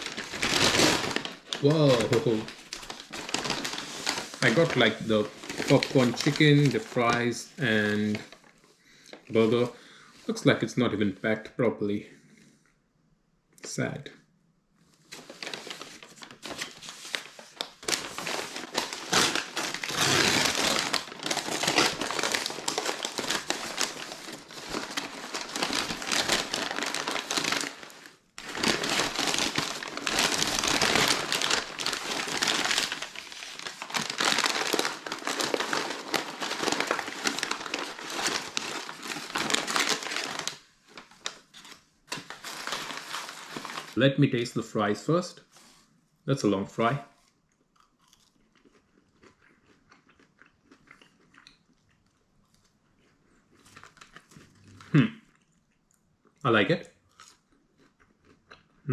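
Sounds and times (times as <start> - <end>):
paper packaging crinkling: 0.0 - 9.6, 15.0 - 44.2.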